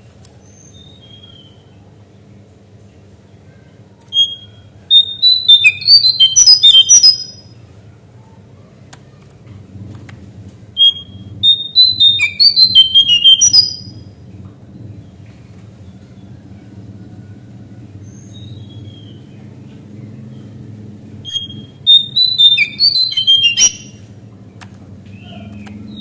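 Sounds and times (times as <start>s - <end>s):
faint low hum: 0.0s - 26.0s
songbird whistling quick notes: 4.2s - 7.4s, 10.8s - 14.0s, 21.2s - 24.0s.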